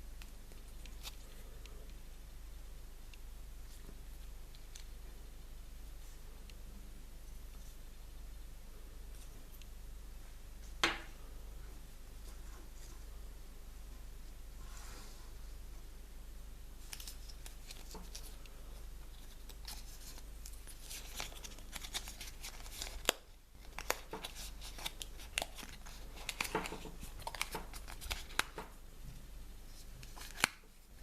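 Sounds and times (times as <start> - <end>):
plastic wrapper crinkling: 19.1 - 28.7, 30.0 - 30.6.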